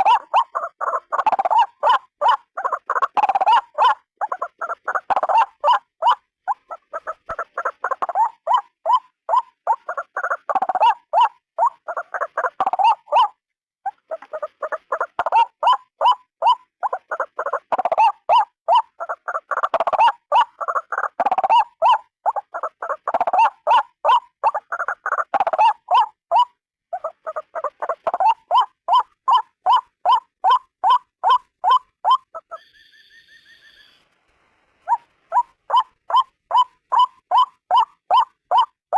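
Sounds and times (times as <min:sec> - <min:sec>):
waterhen harsh croaking calls: 0:00.0 - 0:34.0, 0:34.8 - 0:38.8.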